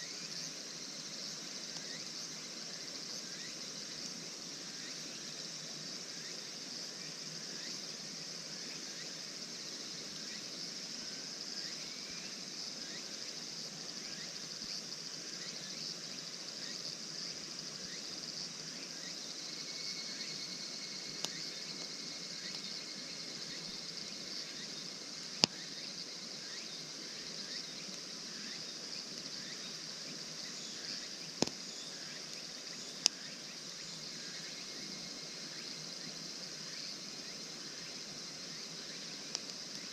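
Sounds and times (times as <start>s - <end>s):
insects chirping: 0.0s - 39.9s
campfire crackling pops: 21.2s - 22.6s, 25.4s - 25.7s, 31.3s - 31.7s, 33.0s - 33.2s, 39.2s - 39.9s.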